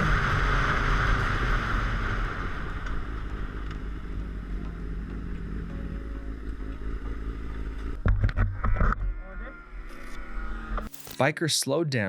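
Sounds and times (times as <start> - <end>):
motorcycle engine idling: 2.9 - 8.2.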